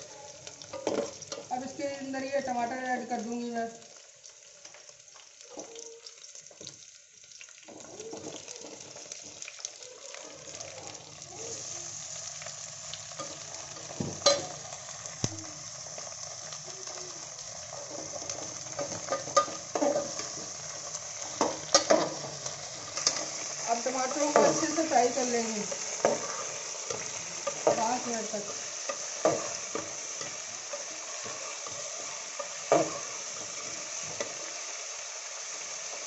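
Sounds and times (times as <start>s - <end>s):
vegetables sizzling in hot oil: 0.0s - 36.0s
spoon clinking against pot: 14.2s - 14.5s.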